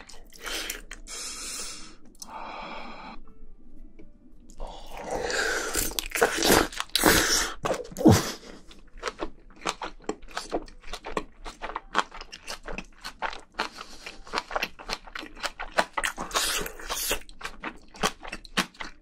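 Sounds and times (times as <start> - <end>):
crunchy chewing: 4.9 - 19.0.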